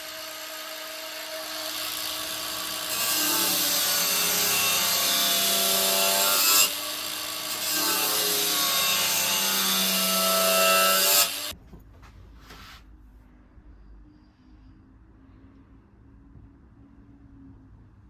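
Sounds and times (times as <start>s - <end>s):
angle grinder grinding steel: 0.0s - 11.6s.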